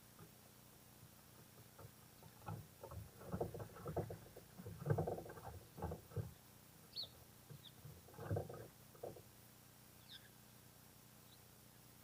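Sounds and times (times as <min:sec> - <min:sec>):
birds tapping on wood: 0:01.1 - 0:09.4
high bird chirps: 0:06.9 - 0:07.8, 0:10.0 - 0:10.4.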